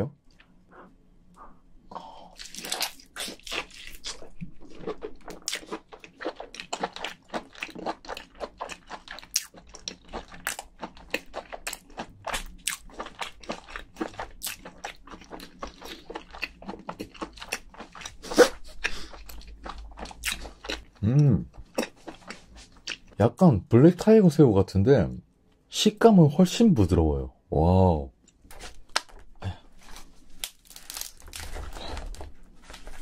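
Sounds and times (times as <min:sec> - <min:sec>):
person chewing wetly: 0:00.3 - 0:23.2.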